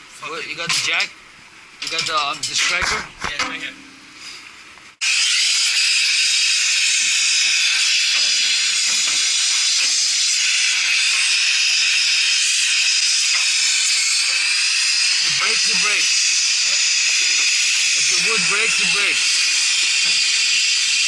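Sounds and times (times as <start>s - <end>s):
gas torch hissing: 4.2s - 21.0s.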